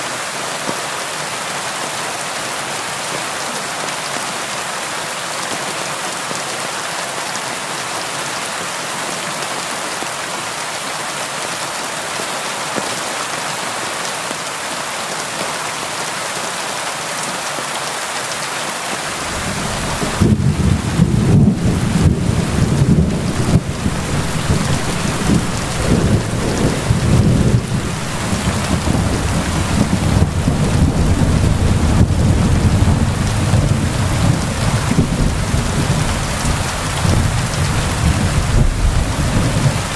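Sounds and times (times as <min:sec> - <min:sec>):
low rumble of thunder: 0:19.1 - 0:39.9
rain on window glass: 0:19.1 - 0:39.9.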